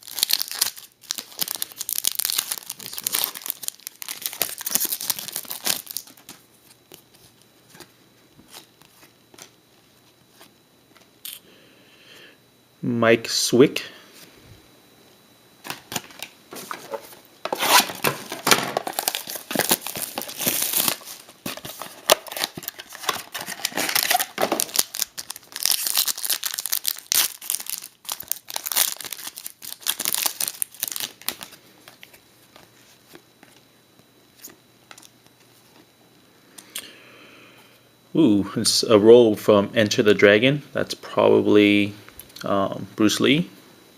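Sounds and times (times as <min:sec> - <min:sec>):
plastic packaging crinkling: 0:00.0 - 0:06.8, 0:15.6 - 0:33.2.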